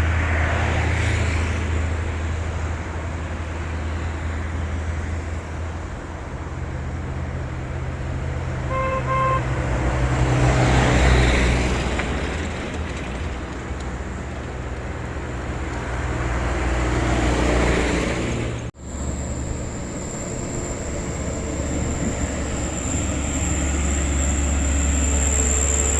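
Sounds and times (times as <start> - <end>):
diesel truck engine pulling uphill: 0.0 - 25.9
vehicles passing: 0.0 - 25.9
truck horn toots: 8.6 - 10.3.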